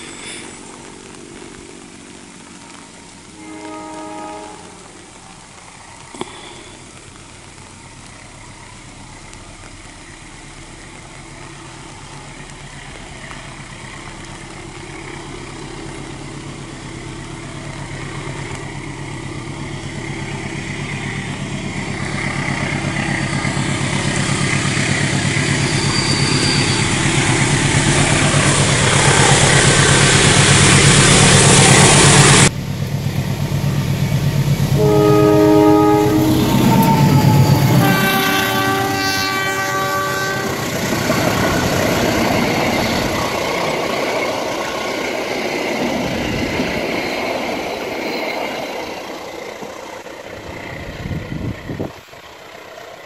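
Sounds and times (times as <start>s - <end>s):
locomotive engine rumble: 0.0s - 53.0s
train horn blasts: 3.2s - 5.3s, 34.7s - 40.8s.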